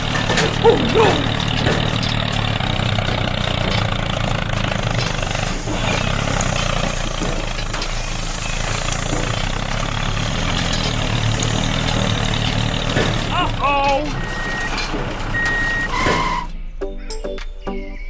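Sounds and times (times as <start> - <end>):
heavy vehicle engine droning: 0.0 - 16.8.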